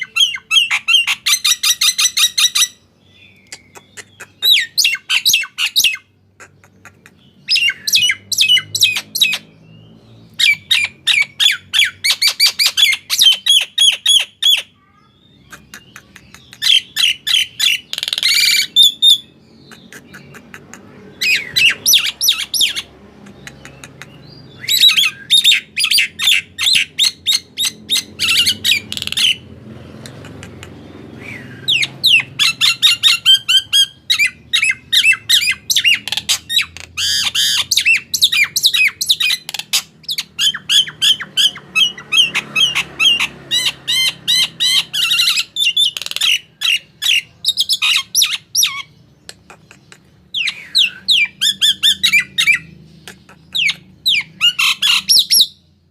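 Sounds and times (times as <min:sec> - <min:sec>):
myna squawking and whistling: 0:15.4 - 0:29.4, 0:31.1 - 0:48.9, 0:50.3 - 0:55.6.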